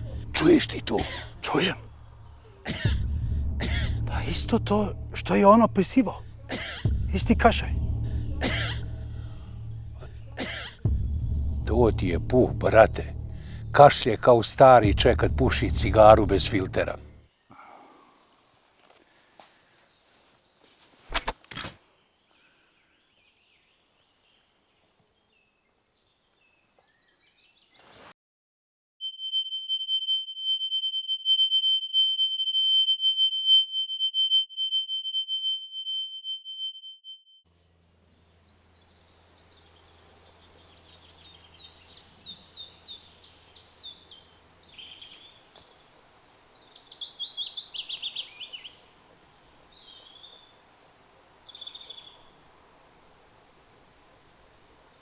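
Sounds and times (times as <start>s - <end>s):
small birds chirping: 0.0s - 11.0s, 22.0s - 28.1s, 37.6s - 52.5s
sharp clicks: 21.1s - 21.8s
high-pitched ringing tone: 29.0s - 37.4s.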